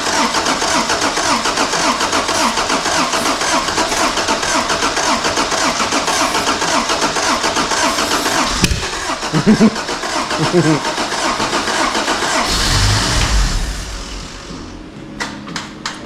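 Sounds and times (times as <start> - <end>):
engine cranking by starter: 0.0 - 14.9.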